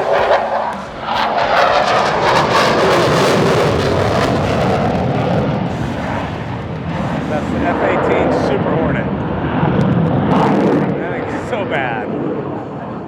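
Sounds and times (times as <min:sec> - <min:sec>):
fighter jet engines roaring: 0:00.0 - 0:13.0.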